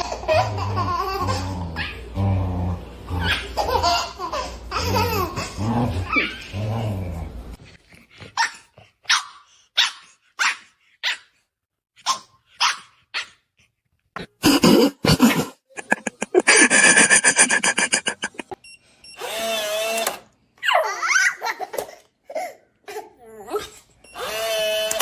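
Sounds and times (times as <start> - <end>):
dog whining: 0.0 - 4.0, 4.7 - 7.0.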